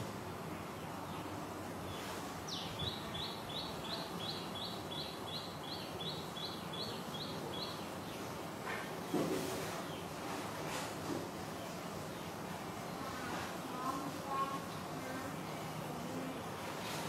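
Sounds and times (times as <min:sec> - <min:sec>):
background hiss: 0:00.0 - 0:17.0
bird chirping: 0:00.5 - 0:10.2.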